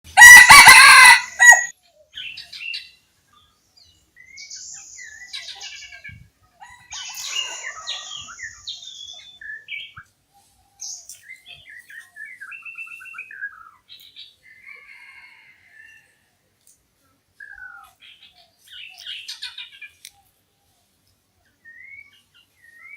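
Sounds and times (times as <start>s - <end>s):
birds chirping: 0.2s - 15.2s
whistled gliding bird notes: 6.9s - 13.7s.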